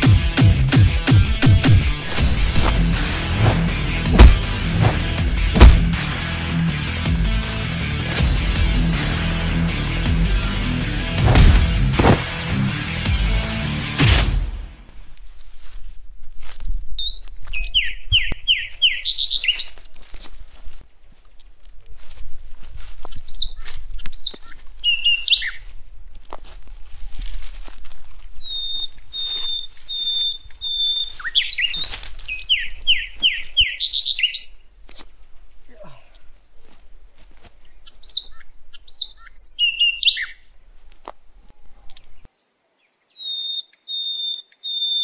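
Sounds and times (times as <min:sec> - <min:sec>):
small birds chirping: 0:14.9 - 0:45.0.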